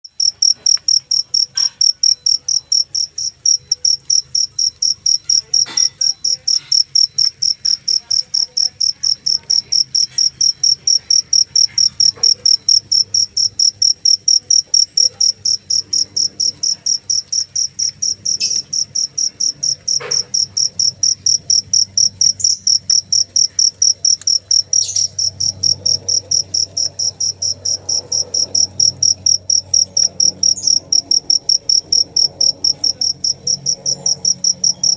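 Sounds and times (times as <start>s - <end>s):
cricket chirping: 0.1s - 34.9s.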